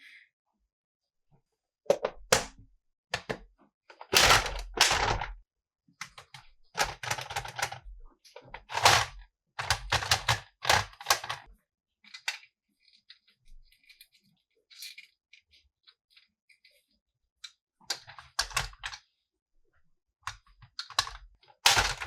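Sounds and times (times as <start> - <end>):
plastic toy pieces clicking: 4.1 - 5.3, 6.2 - 7.8, 8.7 - 11.5, 17.9 - 19.0, 20.6 - 22.0.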